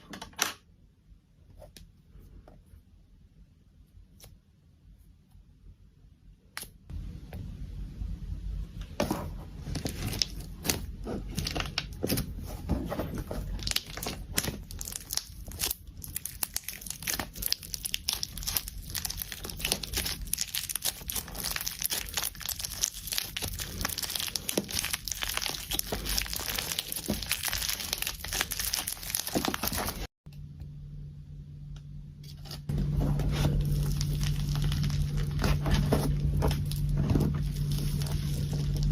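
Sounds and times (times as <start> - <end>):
steady low hum: 0.9 - 22.2, 30.0 - 38.9
slime crackling and popping: 13.6 - 30.1, 33.7 - 38.9.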